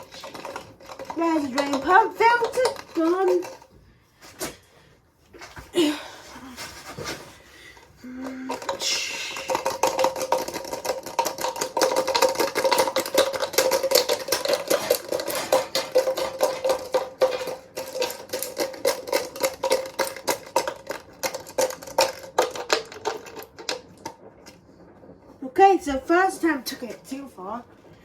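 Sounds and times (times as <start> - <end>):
knocking and rattling: 0.0 - 3.8, 8.4 - 25.1
washing machine whine: 0.0 - 28.0.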